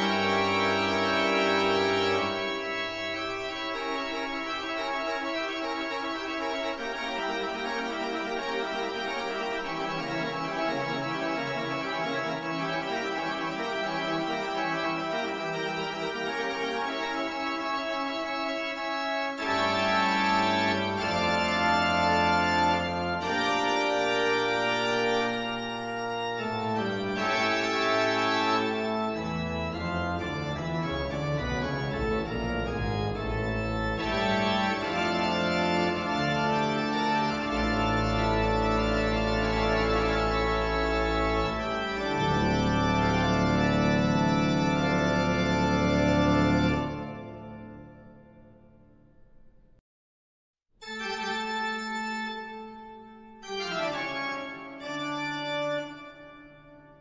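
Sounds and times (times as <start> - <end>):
organ music: 0.0 - 48.8, 50.8 - 57.0.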